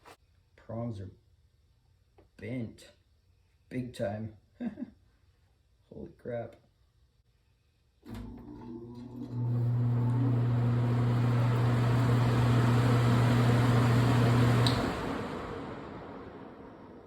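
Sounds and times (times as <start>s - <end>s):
blower fan motor and rushing air: 9.6s - 17.0s
fan switch click: 14.5s - 15.0s.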